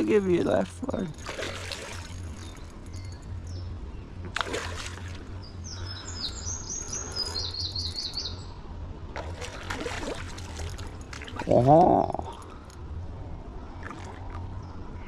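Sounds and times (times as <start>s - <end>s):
songbird chirping: 0.0s - 8.6s
low steady hum: 0.0s - 15.0s.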